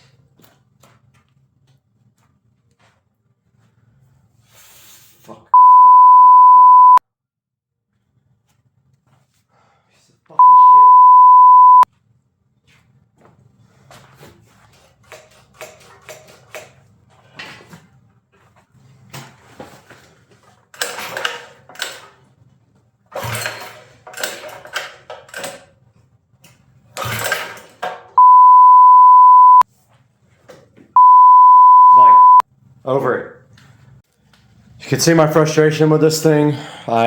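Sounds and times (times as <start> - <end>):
one-tone censor bleep: 5.6 - 7.0, 10.4 - 11.8, 28.2 - 29.6, 31.0 - 32.4.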